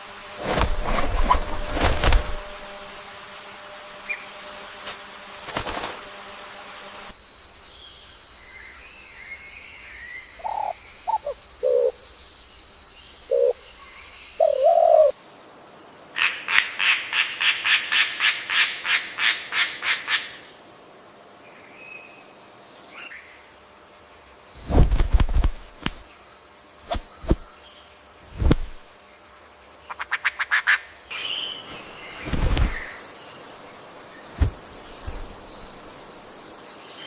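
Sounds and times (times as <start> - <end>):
faint bird chirps: 7.8 - 15.1.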